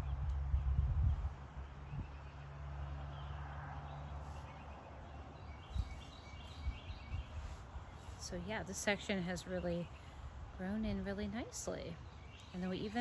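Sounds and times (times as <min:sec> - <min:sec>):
bird chirping: 0:03.1 - 0:10.2, 0:11.6 - 0:13.0.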